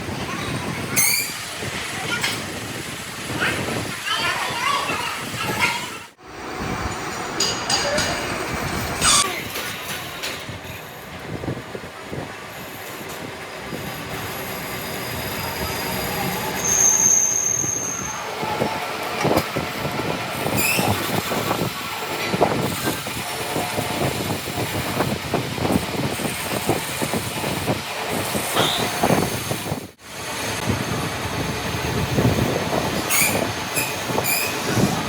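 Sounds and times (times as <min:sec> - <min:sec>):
high squeal: 0:01.0 - 0:01.5, 0:13.8 - 0:18.6, 0:20.5 - 0:21.2, 0:33.1 - 0:34.8
metal clanking and rattling: 0:06.9 - 0:10.7.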